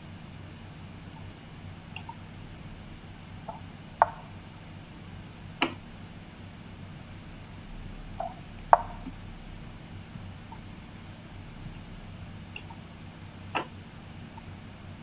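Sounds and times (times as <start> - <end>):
faint low hum: 0.0 - 15.0
sharp clicks and taps: 7.4 - 9.2.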